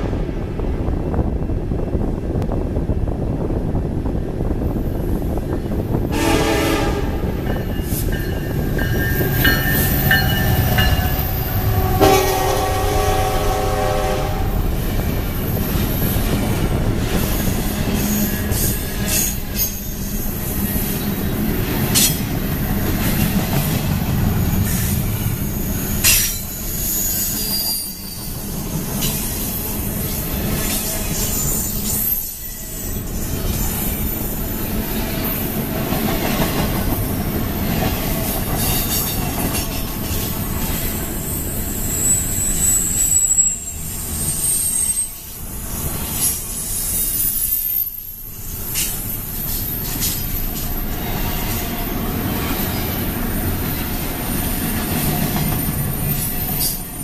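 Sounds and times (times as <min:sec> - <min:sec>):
train horn blasts: 0:06.1 - 0:07.4, 0:11.4 - 0:14.7
wheels clicking over rail joints: 0:35.3 - 0:41.0, 0:48.5 - 0:57.0.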